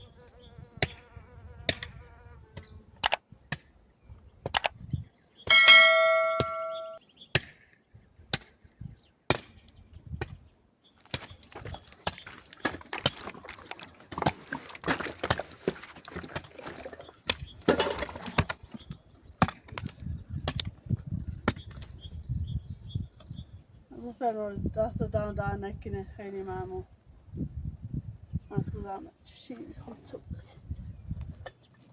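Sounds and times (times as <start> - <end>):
hammer strikes on rock: 7.4 - 7.6, 9.3 - 9.6.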